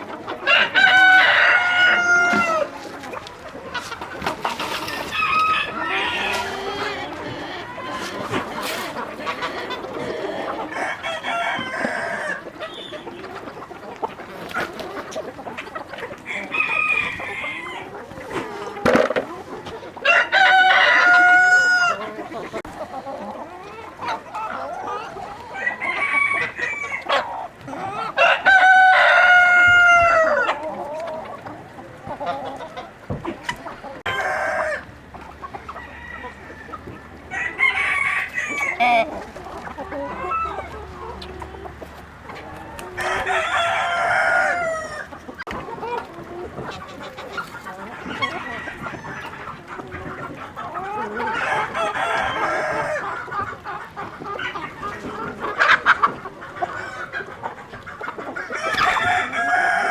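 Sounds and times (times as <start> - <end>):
hens clucking: 0.0 - 59.9
rooster crowing: 0.5 - 2.7, 5.1 - 6.5, 20.0 - 22.0, 28.2 - 30.5.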